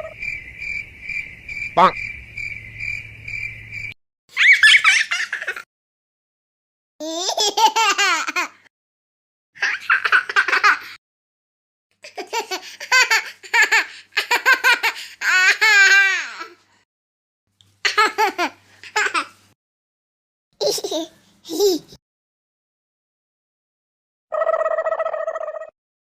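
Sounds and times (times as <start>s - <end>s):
baby giggling: 4.4s - 5.6s, 7.0s - 8.6s, 12.1s - 16.6s, 17.9s - 19.3s, 20.6s - 22.0s.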